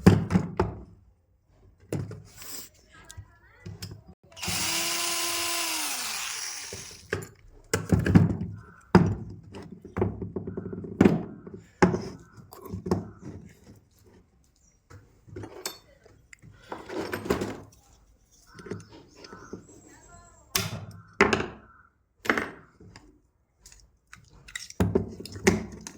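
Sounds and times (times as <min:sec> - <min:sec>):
knocks and clunks of tool handling: 0:00.0 - 0:01.0, 0:01.7 - 0:02.3, 0:06.7 - 0:14.3, 0:14.9 - 0:17.8, 0:24.5 - 0:25.9
hammer drill motor spinning down: 0:04.3 - 0:07.1.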